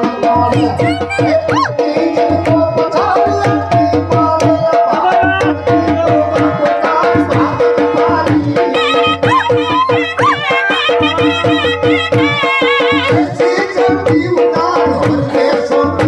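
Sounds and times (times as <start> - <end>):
fast hand drumming: 0.0 - 16.0
reed pipe melody: 8.7 - 13.0.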